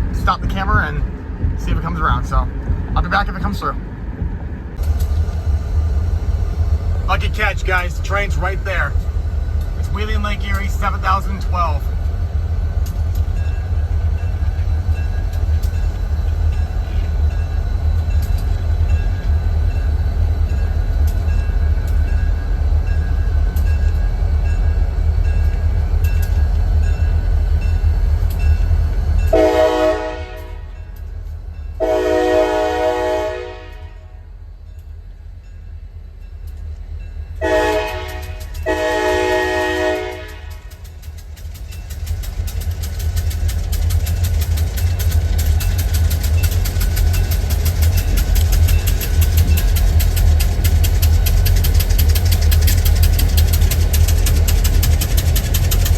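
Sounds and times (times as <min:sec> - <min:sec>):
train low rumble: 0:00.0 - 0:55.9
diesel locomotive horn blasts: 0:29.3 - 0:30.8, 0:31.8 - 0:34.2, 0:37.4 - 0:40.8.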